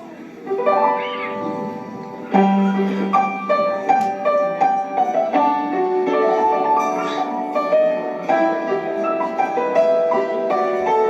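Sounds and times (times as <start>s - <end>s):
piano instrumental: 0.0s - 11.0s.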